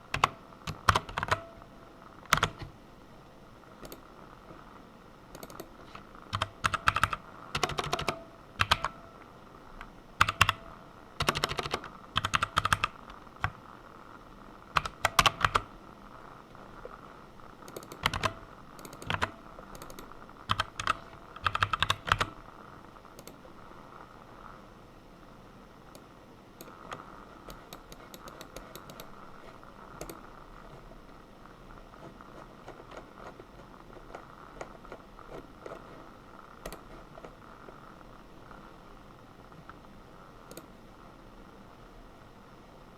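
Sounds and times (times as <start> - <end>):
computer keyboard typing: 0.1 - 1.6, 2.3 - 2.7, 3.8 - 4.1, 5.3 - 9.1, 10.2 - 13.6, 14.7 - 15.7, 17.6 - 22.4, 26.6 - 29.2, 30.0 - 30.3, 32.0 - 37.8.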